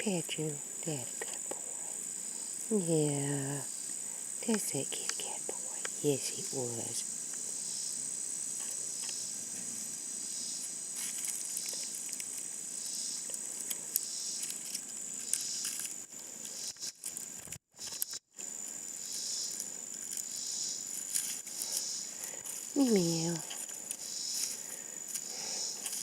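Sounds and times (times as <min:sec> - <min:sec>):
insects chirring: 0:00.0 - 0:26.0
small rustles and clicks: 0:10.9 - 0:12.6, 0:13.2 - 0:18.5, 0:20.9 - 0:26.0.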